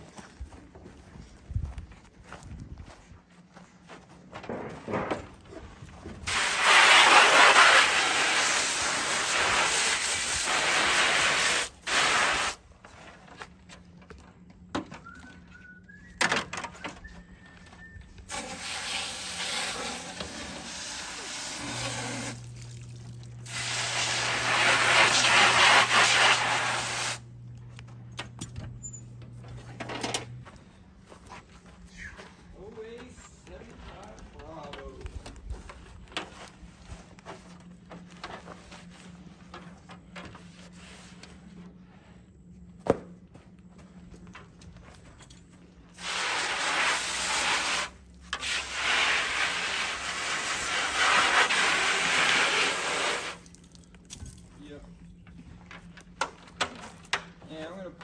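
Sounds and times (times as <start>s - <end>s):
hose spraying hiss: 6.3s - 12.6s, 18.3s - 27.2s, 46.0s - 53.5s.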